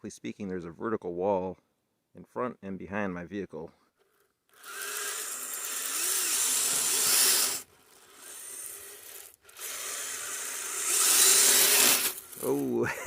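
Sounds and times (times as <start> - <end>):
electric motor whine: 4.5 - 12.8
tyres scraping snow and gravel: 11.0 - 12.8.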